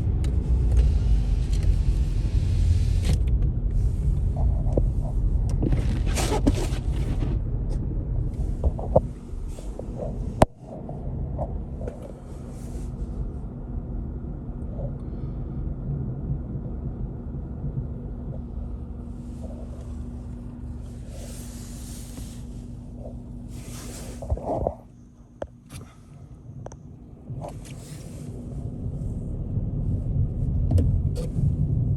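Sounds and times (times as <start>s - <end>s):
low rumble of road traffic: 0.0s - 31.9s
vehicles passing with hiss: 18.8s - 24.4s, 27.3s - 30.5s.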